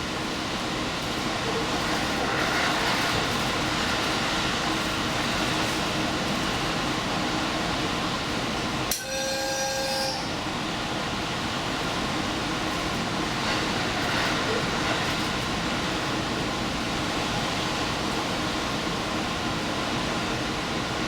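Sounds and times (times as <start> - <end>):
diesel train rumbling: 0.0 - 21.0
short pitched tone: 8.9 - 10.3.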